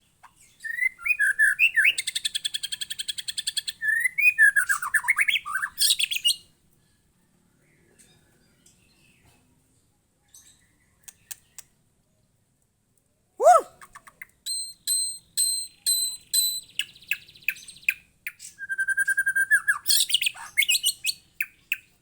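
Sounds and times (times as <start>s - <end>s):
bird singing whistled phrases: 0.6s - 6.4s, 13.4s - 21.8s
faint clicks: 11.0s - 11.8s.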